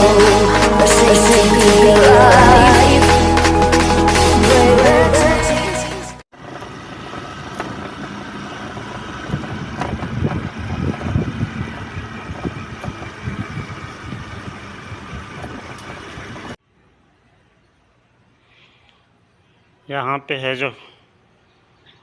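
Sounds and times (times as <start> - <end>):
scooter engine and road rumble: 6.3 - 16.6.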